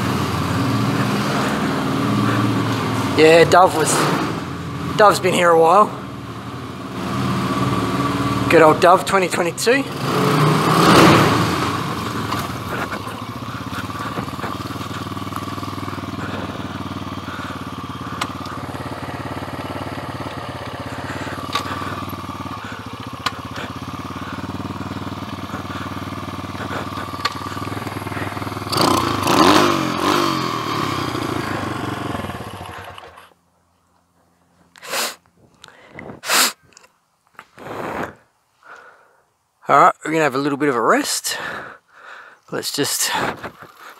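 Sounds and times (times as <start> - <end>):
motorbike engine running: 0.0 - 33.4.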